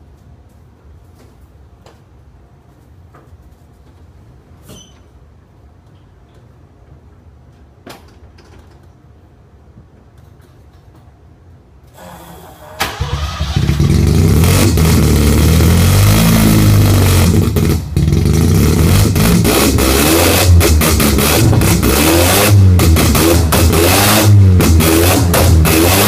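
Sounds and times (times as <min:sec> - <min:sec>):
rotary engine revving: 0:12.8 - 0:26.0
sharp exhaust pops: 0:12.9 - 0:26.0.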